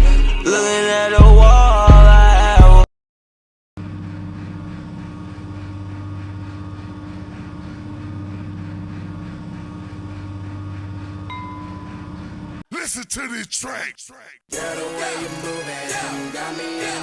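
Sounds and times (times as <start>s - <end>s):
machine hum: 3.8s - 12.6s.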